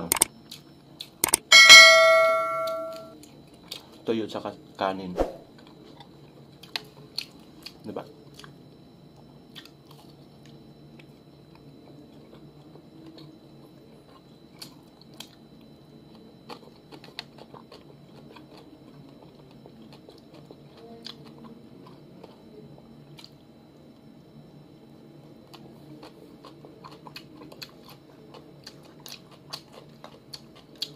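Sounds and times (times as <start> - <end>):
low background hum: 0.0 - 30.9
person chewing food: 5.6 - 8.6, 9.5 - 15.4, 16.2 - 23.4, 25.4 - 30.9.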